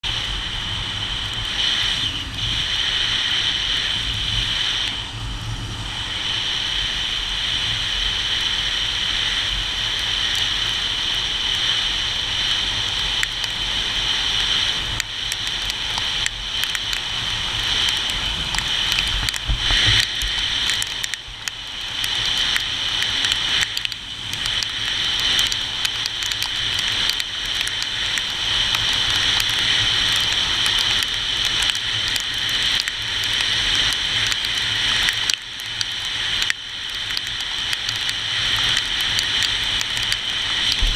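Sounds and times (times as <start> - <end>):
rain pattering: 0.0 - 40.9
low rumble: 40.7 - 40.9.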